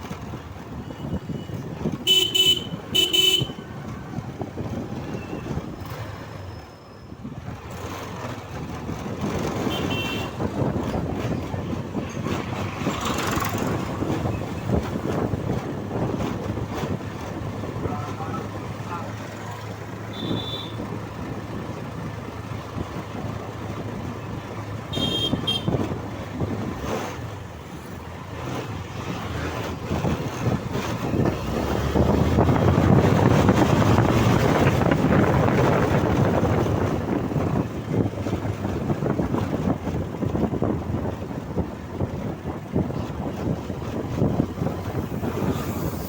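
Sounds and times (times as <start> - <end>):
wind buffeting microphone: 0.0 - 46.0
short horn beeps: 20.1 - 20.9, 24.9 - 25.8.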